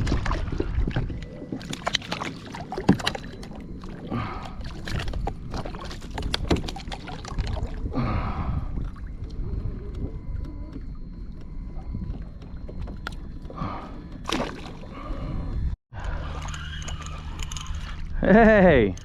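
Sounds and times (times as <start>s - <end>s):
water sloshing against kayak hull: 0.0s - 8.0s, 8.6s - 15.3s.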